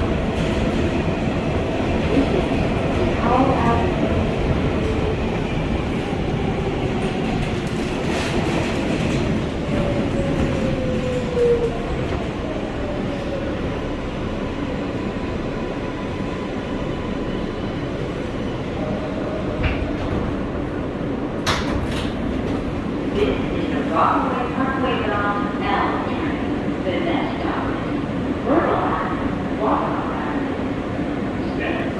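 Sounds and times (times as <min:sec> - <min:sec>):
train rumbling on rails: 0:00.0 - 0:31.9.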